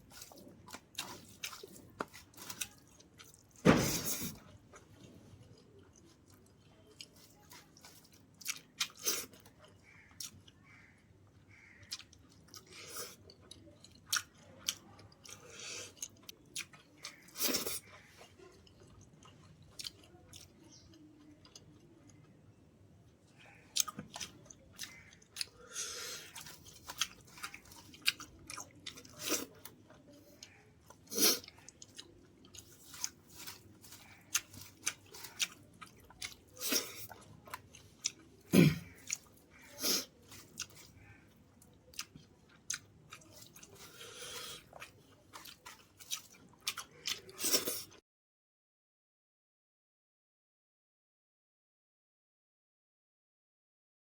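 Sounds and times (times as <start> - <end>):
person chewing and crunching food: 0.0 - 48.0.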